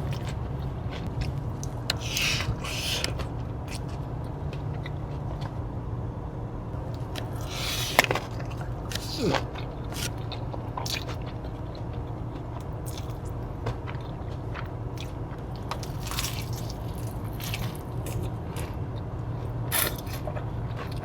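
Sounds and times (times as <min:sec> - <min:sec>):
chewing crunchy food: 0:00.0 - 0:05.6, 0:06.9 - 0:21.0
low hum: 0:00.0 - 0:21.0.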